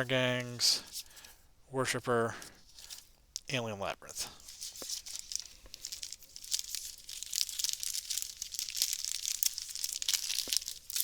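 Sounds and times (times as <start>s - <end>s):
plastic wrapper crinkling and tearing: 4.3s - 11.0s.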